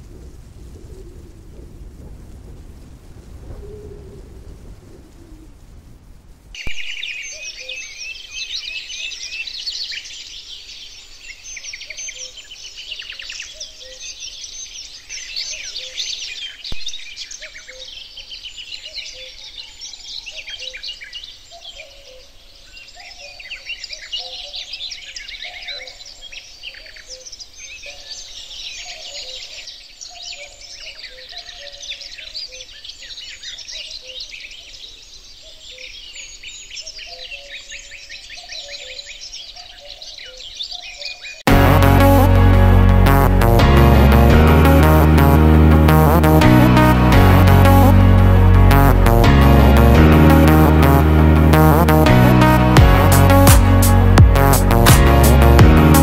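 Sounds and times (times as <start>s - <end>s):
songbirds chorus: 6.6s - 41.5s.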